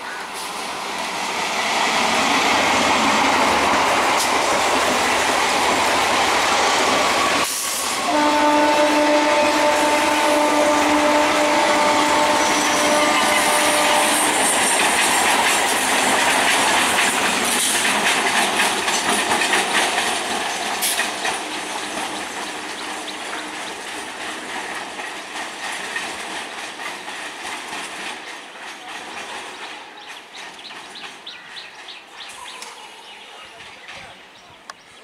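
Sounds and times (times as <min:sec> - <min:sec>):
train wheels rattling over rail joints: 0:00.4 - 0:32.4
train horn: 0:08.0 - 0:14.6.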